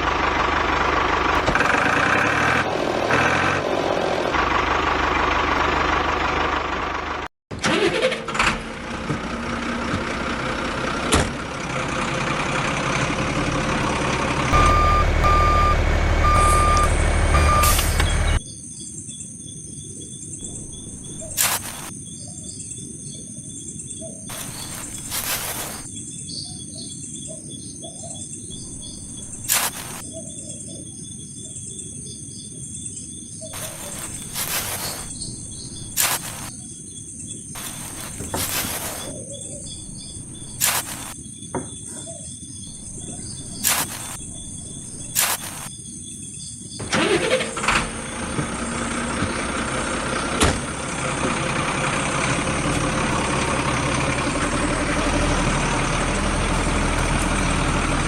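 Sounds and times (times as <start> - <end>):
engine running: 0.0 - 18.4, 20.4 - 21.9, 24.3 - 25.9, 28.5 - 30.0, 33.6 - 36.5, 37.6 - 41.2, 42.7 - 45.7, 46.8 - 58.0
birds and insects chirring: 13.8 - 58.0.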